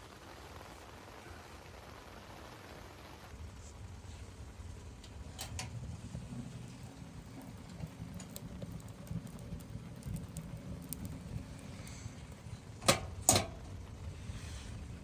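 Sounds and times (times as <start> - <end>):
steady low rumble: 3.3 - 15.0.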